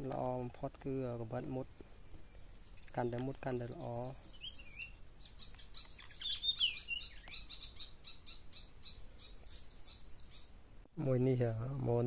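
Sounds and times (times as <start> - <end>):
birds chirping: 0.0 - 12.0
bird sweeping call: 4.2 - 10.5.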